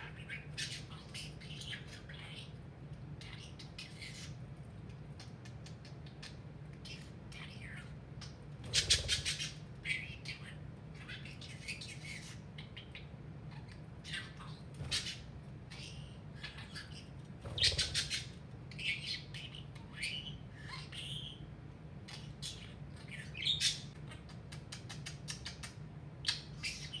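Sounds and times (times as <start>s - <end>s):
budgerigar chattering: 8.6s - 21.4s.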